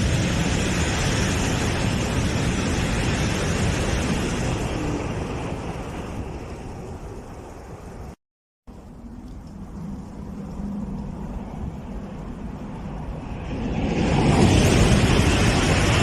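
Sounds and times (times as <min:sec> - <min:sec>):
high-speed train passing: 0:00.0 - 0:07.9, 0:12.5 - 0:16.0.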